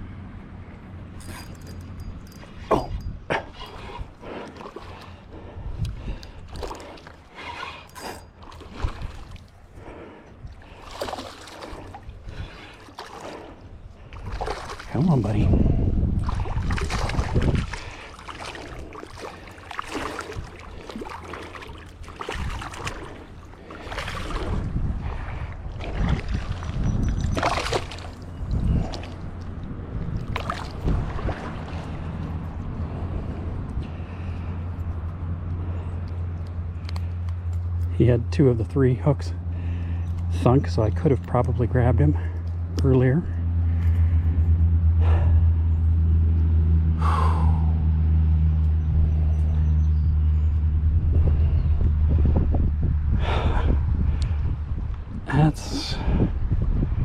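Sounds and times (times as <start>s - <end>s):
wind rumble on microphone: 0.0s - 7.0s, 13.4s - 57.0s
creek water sloshing and splashing: 2.6s - 44.3s
water splashing from thrashing fish: 10.6s - 15.0s, 16.2s - 24.6s, 25.7s - 29.3s, 30.2s - 32.0s.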